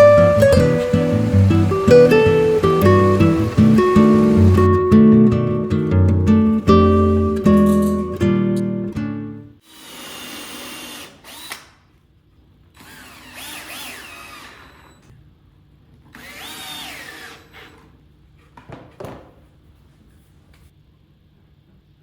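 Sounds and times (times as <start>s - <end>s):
power drill whining: 0.0s - 4.8s, 9.6s - 11.8s, 12.8s - 15.1s, 16.1s - 18.0s.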